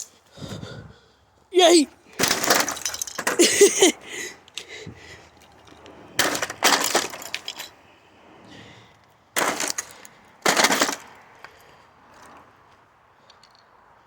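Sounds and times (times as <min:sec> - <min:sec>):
crashing cracking impacts: 0:02.1 - 0:03.4, 0:06.2 - 0:07.8, 0:09.4 - 0:11.2
pieces clattering: 0:02.2 - 0:04.0, 0:06.2 - 0:07.7, 0:09.4 - 0:11.0.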